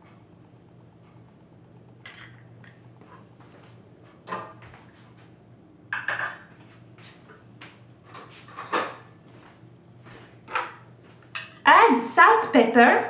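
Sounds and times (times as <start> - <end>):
steady low hum: 0.0 - 13.0
dishes and utensils knocking: 6.0 - 6.5.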